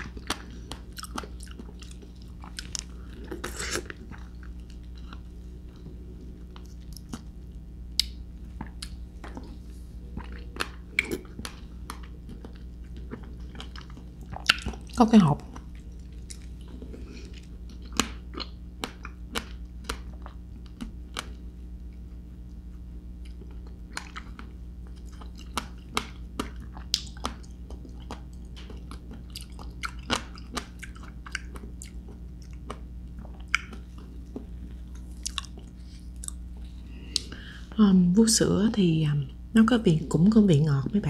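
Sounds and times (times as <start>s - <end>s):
close chewing with wet mouth clicks: 0.0s - 7.4s, 10.1s - 21.4s, 23.2s - 37.4s.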